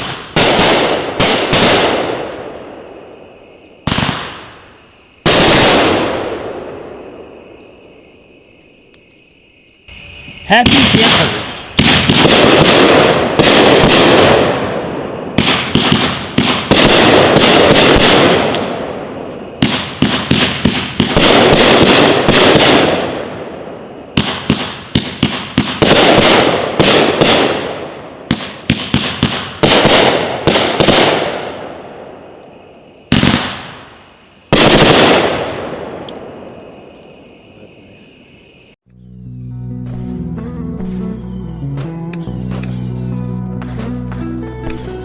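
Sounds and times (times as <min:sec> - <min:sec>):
fireworks sharp breaks: 0:00.0 - 0:03.0, 0:03.7 - 0:06.8, 0:09.9 - 0:23.4, 0:24.1 - 0:31.8, 0:32.4 - 0:38.4.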